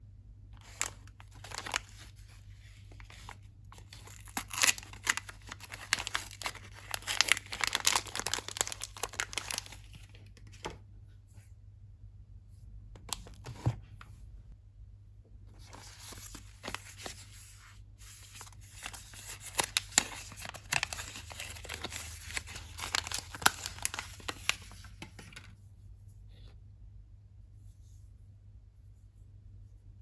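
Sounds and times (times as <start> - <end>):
wrapper rustling: 0.6 - 10.2, 18.0 - 25.5
packaging crinkling and tearing: 0.6 - 10.3, 18.2 - 25.5.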